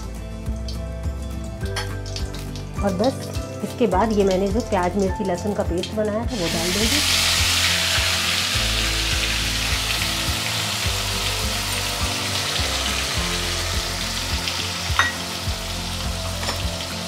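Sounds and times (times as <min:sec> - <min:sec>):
paste sizzling in hot oil: 0:06.3 - 0:17.0.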